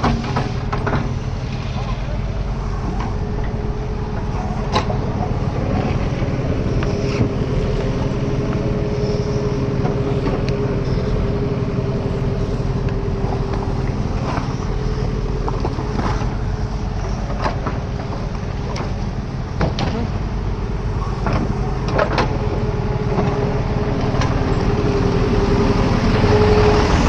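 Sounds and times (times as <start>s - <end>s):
diesel engine running under load: 0.0s - 27.0s
steady whine: 0.0s - 27.0s.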